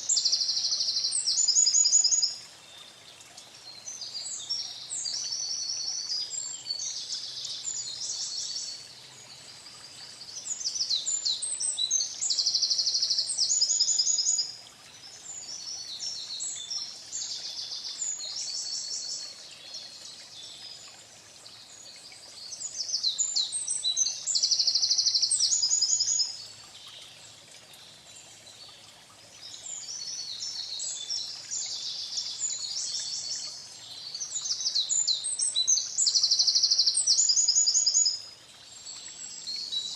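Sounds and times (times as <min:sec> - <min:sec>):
songbird singing trills: 0:00.0 - 0:02.4, 0:03.7 - 0:14.6, 0:22.4 - 0:27.1, 0:29.4 - 0:39.9.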